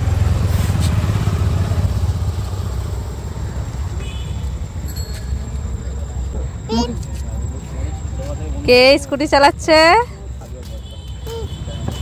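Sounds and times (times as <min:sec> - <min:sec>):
scooter engine running: 0:00.0 - 0:08.8.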